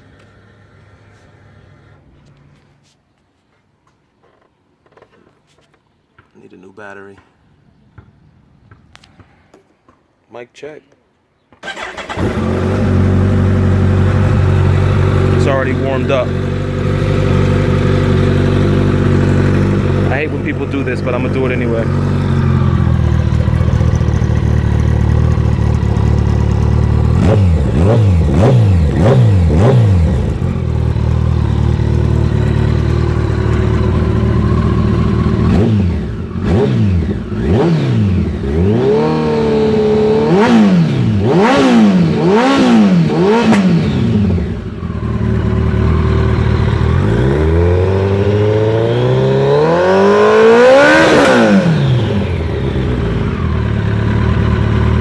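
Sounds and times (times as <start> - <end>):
motorcycle engine revving: 11.6 - 55.0.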